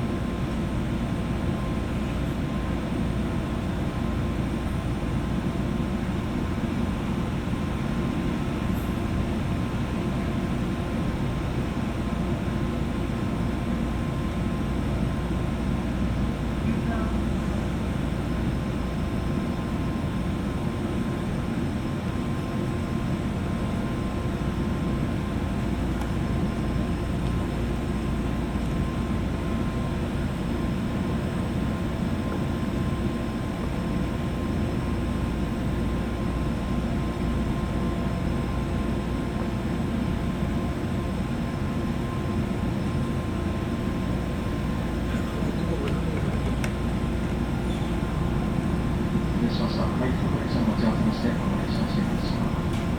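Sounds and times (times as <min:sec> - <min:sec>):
train wheels rumbling on rail: 0:45.1 - 0:52.9
faint steady tones: 0:47.3 - 0:52.9.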